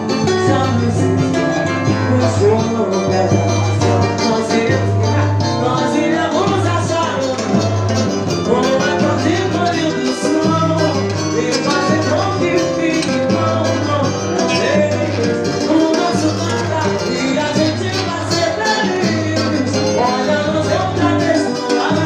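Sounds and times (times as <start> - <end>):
latin band music: 0.0 - 22.0.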